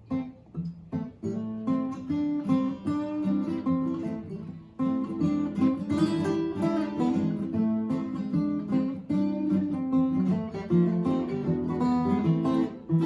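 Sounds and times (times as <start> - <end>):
fingerpicked acoustic guitars: 0.0 - 13.0.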